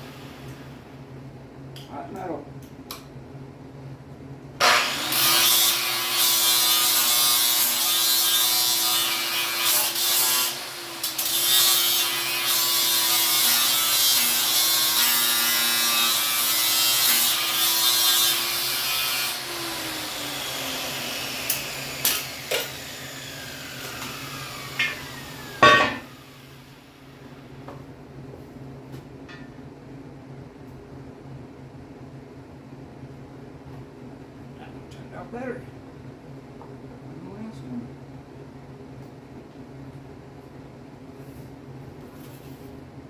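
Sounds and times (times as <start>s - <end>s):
angle grinder grinding steel: 4.7s - 26.7s
metal clank: 25.6s - 26.1s.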